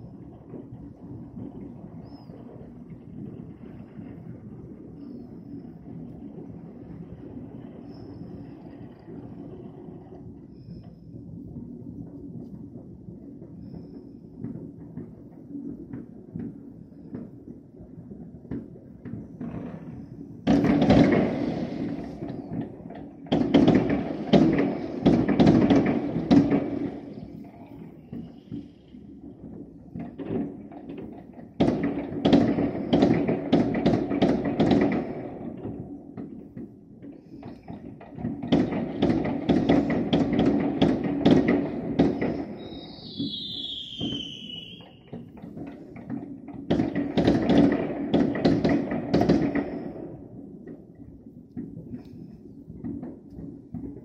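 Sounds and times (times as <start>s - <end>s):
firework bangs and crackles: 0.0s - 54.0s
firework whistle sliding down: 42.4s - 45.2s.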